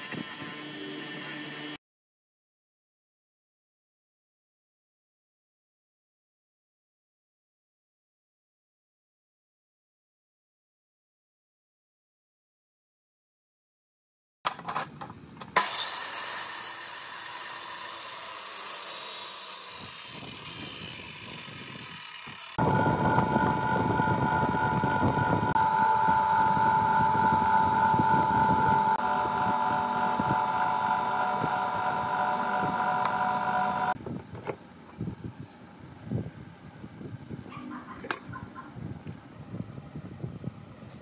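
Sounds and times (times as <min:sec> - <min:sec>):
hissing scraping power tool: 0:15.6 - 0:23.2, 0:25.4 - 0:34.0
machine motor whining: 0:21.6 - 0:34.0.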